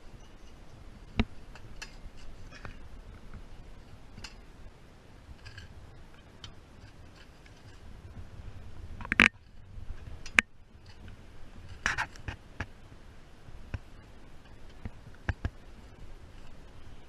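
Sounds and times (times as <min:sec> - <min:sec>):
faint low rumble: 0:00.0 - 0:17.0
sharp clicks and knocks: 0:09.0 - 0:09.4.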